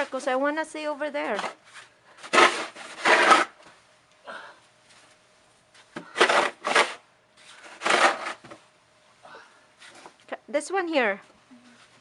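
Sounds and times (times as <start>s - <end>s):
snow shovel scraping snow: 2.2s - 3.5s, 7.6s - 8.4s.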